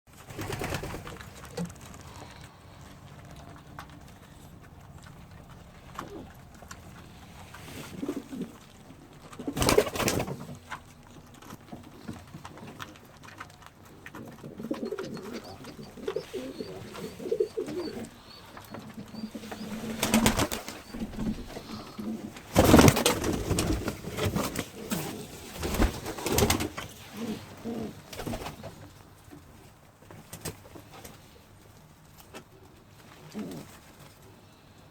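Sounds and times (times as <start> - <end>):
pigeons cooing: 3.6 - 10.4, 13.8 - 28.9, 33.1 - 34.4.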